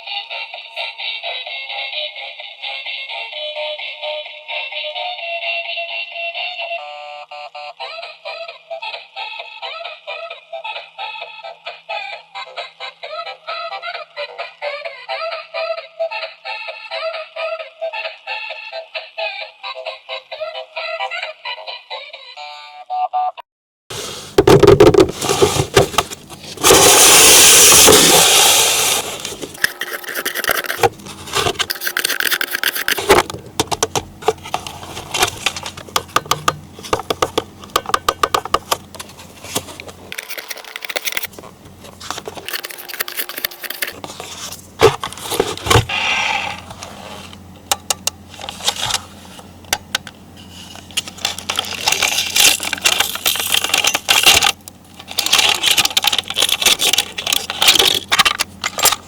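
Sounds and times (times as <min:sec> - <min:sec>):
toy packaging handled: 0:23.9 - 0:47.4, 0:48.3 - 0:59.0
plastic toy parts clicking: 0:29.5 - 0:39.1, 0:39.8 - 0:41.3, 0:42.3 - 0:44.0, 0:50.8 - 0:59.0.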